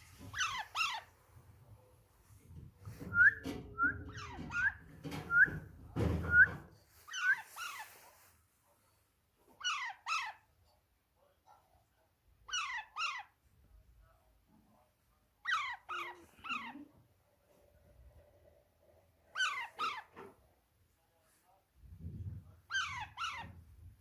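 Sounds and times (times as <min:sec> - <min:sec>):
parakeet chick squeaky calls: 0:00.2 - 0:01.1, 0:07.1 - 0:08.0, 0:09.6 - 0:10.4, 0:12.4 - 0:13.4, 0:15.4 - 0:16.7, 0:19.3 - 0:20.1, 0:22.7 - 0:23.6.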